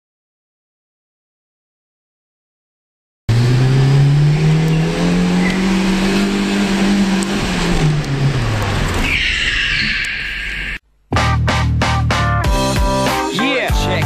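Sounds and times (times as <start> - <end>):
car engine revving: 3.3 - 10.1
high squeal: 4.3 - 6.6, 8.4 - 10.8.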